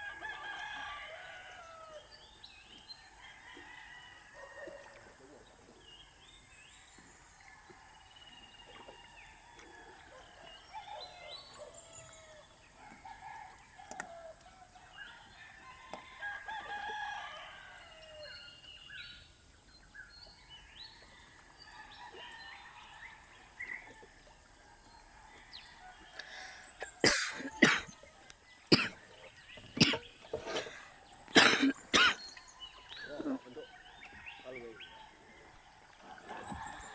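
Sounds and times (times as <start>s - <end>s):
birds calling: 25.4s - 36.9s.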